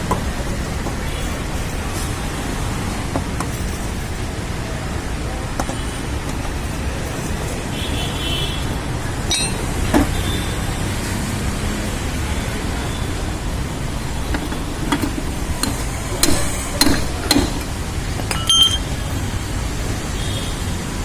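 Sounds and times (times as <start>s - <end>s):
road traffic rumble: 0.0s - 21.0s
sharp metallic clinks: 9.3s - 9.9s, 18.2s - 18.9s.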